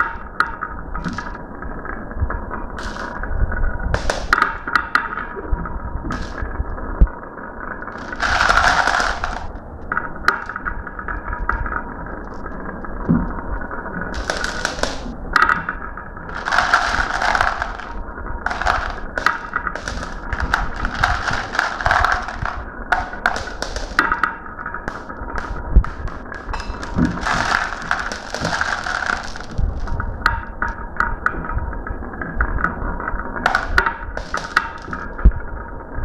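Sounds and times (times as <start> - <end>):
marbles clicking and clattering: 2.8 - 3.2, 4.0 - 5.1, 6.1 - 6.4, 7.9 - 9.7, 10.3 - 10.6, 14.2 - 15.6, 16.3 - 30.0, 33.5 - 35.2
marbles rolling down a run: 4.0 - 4.7, 6.1 - 6.4, 7.9 - 9.6, 14.2 - 15.6, 16.3 - 30.2, 33.4 - 35.2.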